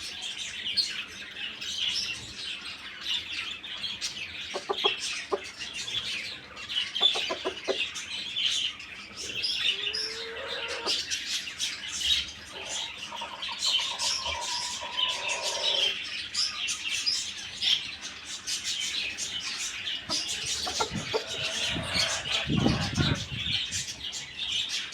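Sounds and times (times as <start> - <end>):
birds chirping: 0.0 - 24.9
chickens calling: 0.0 - 24.9
drawn-out bird call: 12.5 - 16.0.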